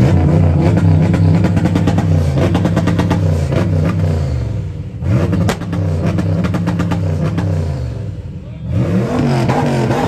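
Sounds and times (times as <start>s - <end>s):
car engine revving: 0.0s - 10.0s
exhaust pop: 5.2s - 7.5s.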